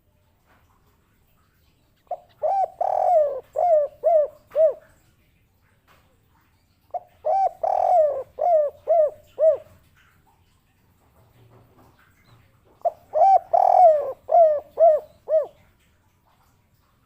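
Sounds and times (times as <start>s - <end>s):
dove cooing: 2.1s - 4.9s, 6.9s - 9.8s, 12.8s - 15.7s.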